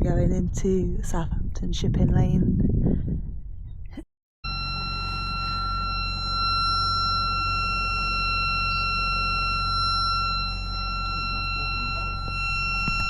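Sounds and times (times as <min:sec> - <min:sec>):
low rumble: 0:00.0 - 0:04.0, 0:04.6 - 0:13.0
high-pitched alarm buzzer: 0:04.4 - 0:13.0.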